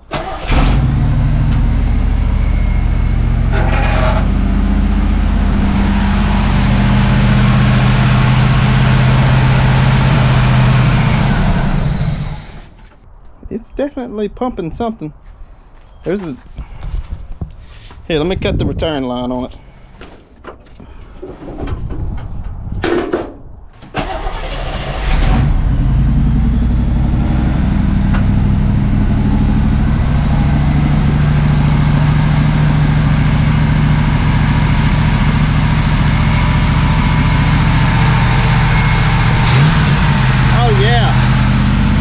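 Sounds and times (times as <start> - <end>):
car engine starting and idling: 0.0 - 13.0, 23.8 - 42.0.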